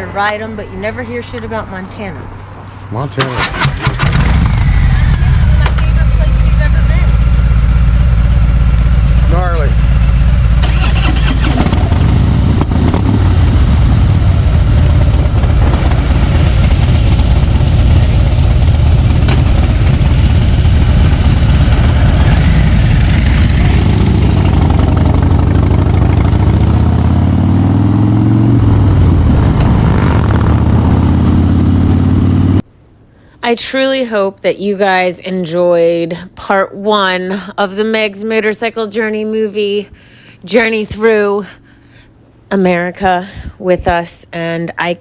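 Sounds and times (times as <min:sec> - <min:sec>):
motorcycle engine running: 0:03.3 - 0:32.6.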